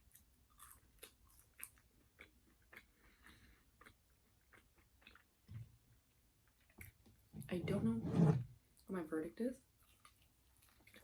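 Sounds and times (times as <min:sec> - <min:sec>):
chewing crunchy food: 0:00.0 - 0:05.5, 0:09.8 - 0:11.0.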